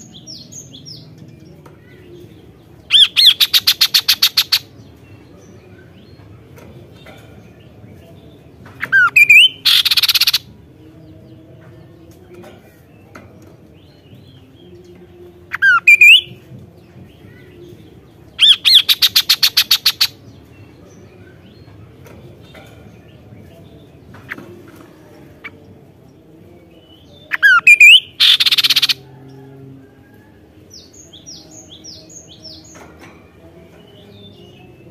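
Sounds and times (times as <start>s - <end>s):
bird whistled calls: 27.3s - 29.0s.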